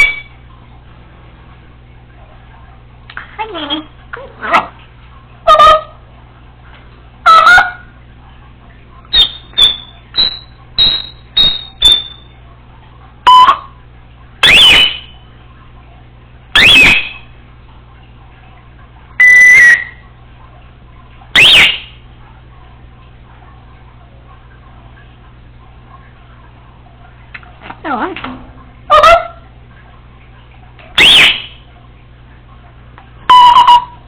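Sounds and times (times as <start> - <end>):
parrot whistling and calling: 0.0 - 0.4, 7.2 - 7.8, 9.1 - 12.3, 14.4 - 15.2, 16.5 - 17.3, 19.2 - 20.0, 21.3 - 22.0, 30.9 - 31.6, 33.3 - 34.0.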